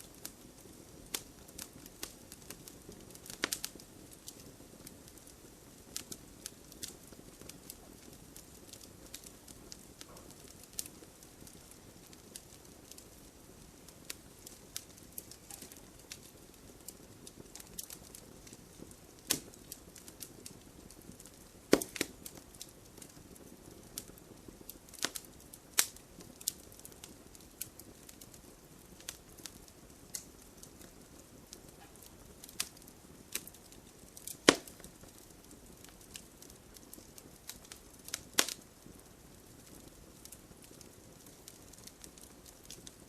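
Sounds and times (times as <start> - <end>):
soft hiss of flames: 0.0 - 43.0
firewood popping sharply: 15.2 - 16.2, 21.2 - 22.2, 34.2 - 34.9, 37.6 - 38.6.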